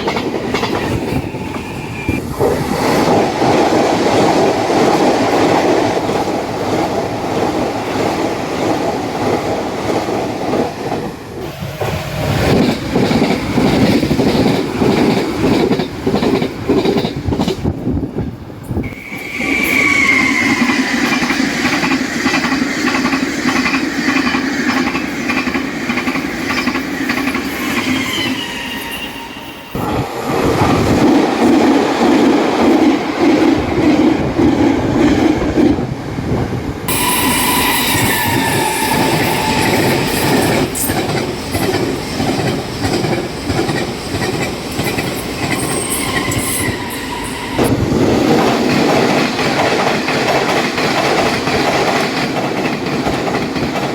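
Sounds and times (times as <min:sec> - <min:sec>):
trains passing at high speed: 0:00.0 - 0:53.9.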